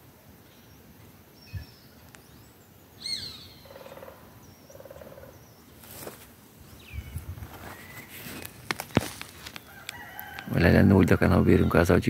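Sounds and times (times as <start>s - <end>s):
high bird chirps: 1.4s - 5.7s.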